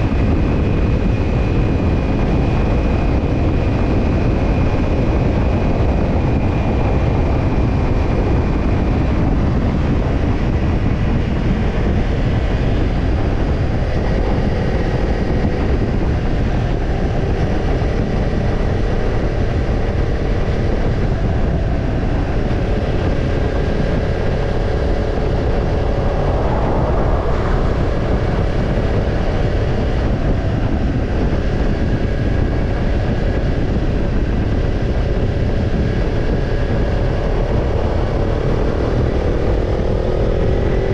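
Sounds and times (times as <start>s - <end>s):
motorcycle engine running: 0.0s - 40.9s
wind rushing: 0.0s - 40.9s.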